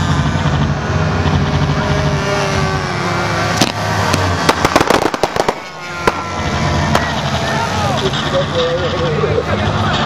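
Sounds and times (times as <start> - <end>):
sharp pops: 3.6 - 6.2.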